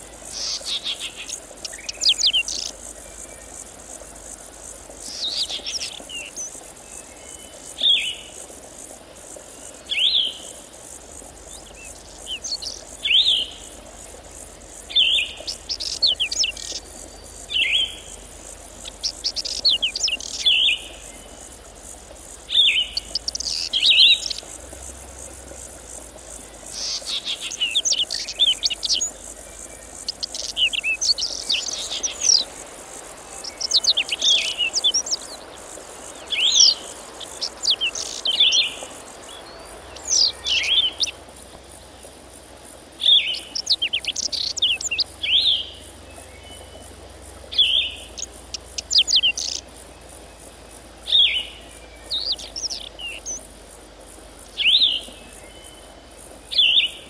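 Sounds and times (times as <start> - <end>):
insects humming: 0.0 - 57.0
small bird chirping: 0.3 - 2.8, 14.9 - 18.2, 18.8 - 21.3, 22.5 - 24.6, 26.6 - 41.2, 43.1 - 45.7, 47.6 - 49.7.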